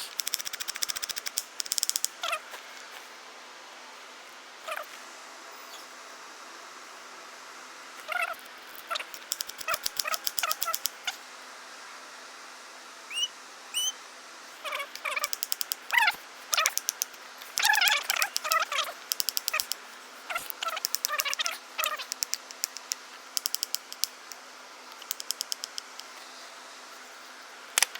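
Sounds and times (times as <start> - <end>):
squirrel chattering: 0.0 - 2.4, 8.0 - 11.2, 13.1 - 13.9, 14.6 - 26.1.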